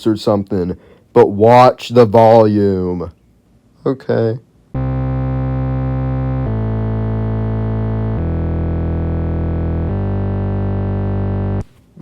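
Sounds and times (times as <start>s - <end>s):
synthesizer bass notes: 4.8s - 11.7s.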